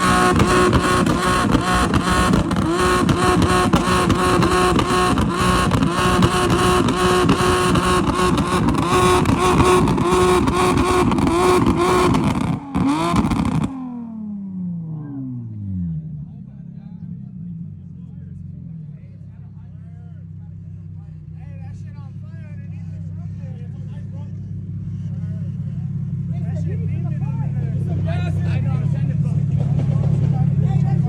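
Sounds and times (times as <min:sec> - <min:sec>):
car engine revving hard: 0:00.0 - 0:14.3.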